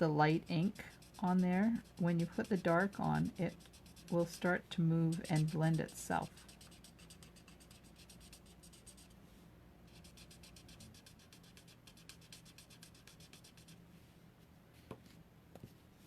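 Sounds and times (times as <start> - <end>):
marker scratching on paper: 0.4 - 9.2, 9.9 - 13.8.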